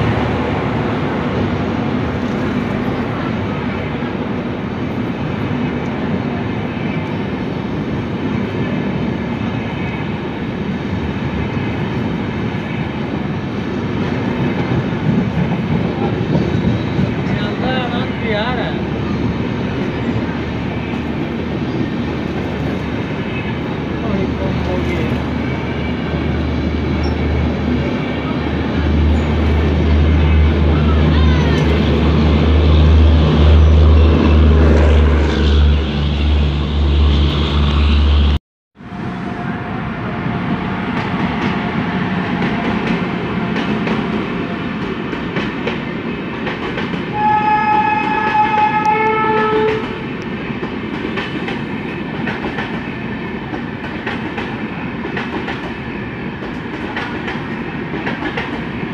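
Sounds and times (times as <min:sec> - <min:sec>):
train rumbling and clattering past: 0:00.0 - 0:58.9
train horn: 0:38.8 - 0:40.4, 0:47.1 - 0:50.1.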